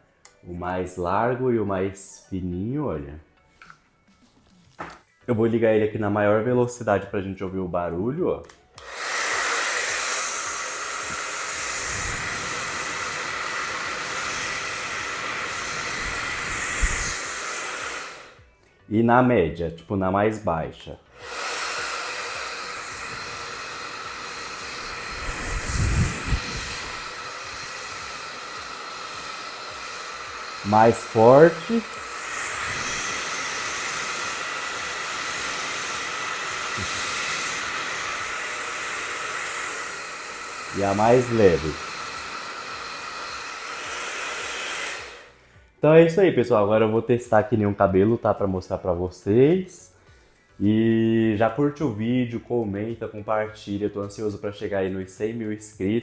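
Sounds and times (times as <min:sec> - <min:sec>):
hair dryer blowing air: 0:08.8 - 0:18.5, 0:21.1 - 0:45.7.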